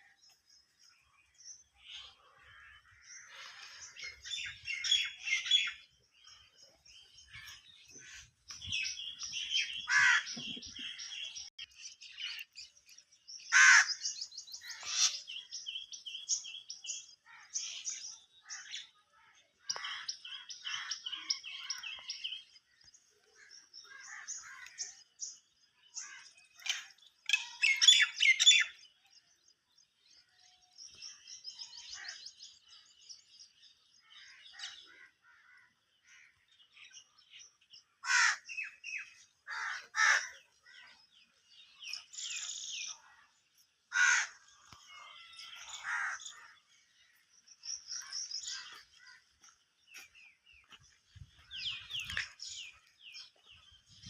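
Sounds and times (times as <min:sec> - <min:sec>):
birds chirping and trilling: 0:00.0 - 0:54.0
harsh cawing calls: 0:09.6 - 0:10.5, 0:13.5 - 0:14.1, 0:38.0 - 0:38.6, 0:39.5 - 0:40.4, 0:43.9 - 0:44.4, 0:45.1 - 0:46.4.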